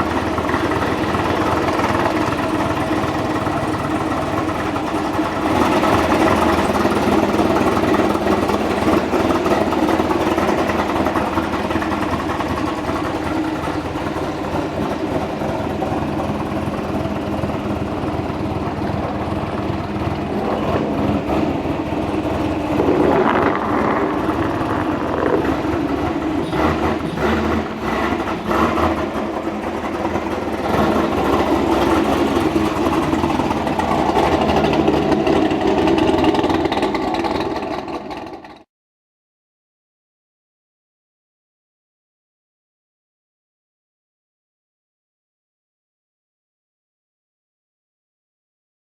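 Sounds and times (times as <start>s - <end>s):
car engine idling: 0.0s - 38.6s.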